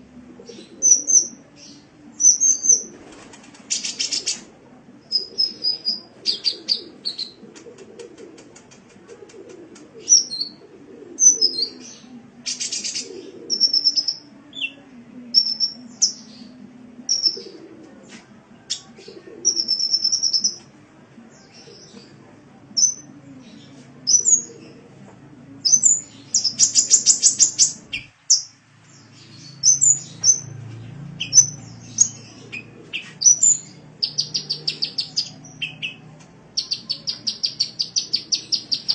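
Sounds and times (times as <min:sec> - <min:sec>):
bird chirping and trilling: 0:17.1 - 0:17.5, 0:19.5 - 0:20.6, 0:22.8 - 0:23.1, 0:25.6 - 0:30.5, 0:31.1 - 0:36.0, 0:36.6 - 0:38.9.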